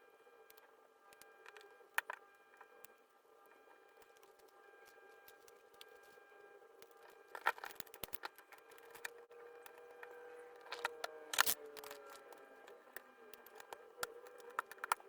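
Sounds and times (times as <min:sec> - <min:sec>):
small objects clicking and clattering: 0:06.8 - 0:15.0.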